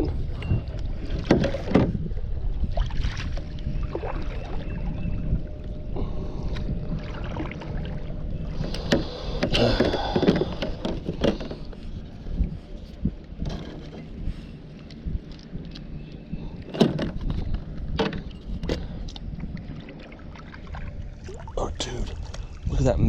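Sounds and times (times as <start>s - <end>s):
low rumble: 0.0s - 23.0s
paddle knocking against hull: 1.2s - 2.0s, 8.8s - 11.8s
paddle splashing: 19.6s - 22.6s.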